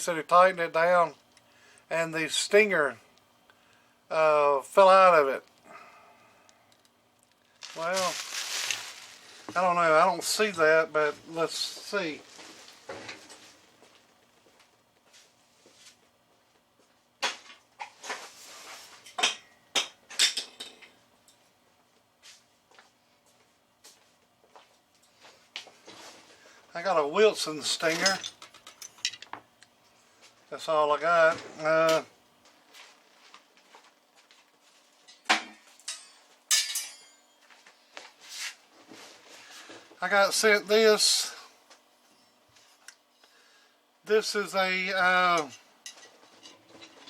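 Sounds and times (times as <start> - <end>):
faint rustling: 7.5 - 10.4
metal parts clinking and knocking: 27.8 - 29.4
metallic clink: 35.8 - 37.4.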